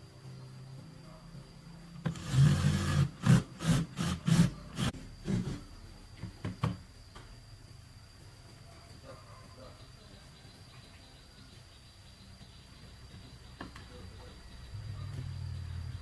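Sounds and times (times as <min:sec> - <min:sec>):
hand tool scraping: 0:02.0 - 0:05.8.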